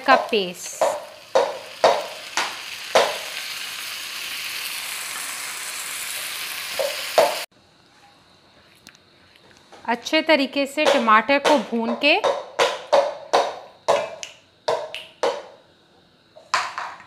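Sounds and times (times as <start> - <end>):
spatula knocking on bowl: 0.0 - 3.2, 10.8 - 15.5
tomato paste sizzling in oil: 0.0 - 7.5.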